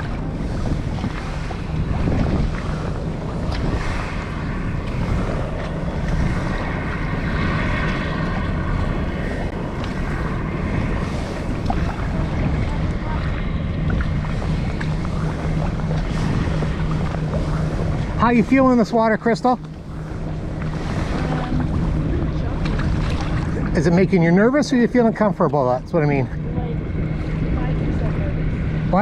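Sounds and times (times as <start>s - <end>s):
choppy sea water: 0.0s - 29.0s
steady low drone: 0.0s - 29.0s
wind buffeting microphone: 0.0s - 29.0s.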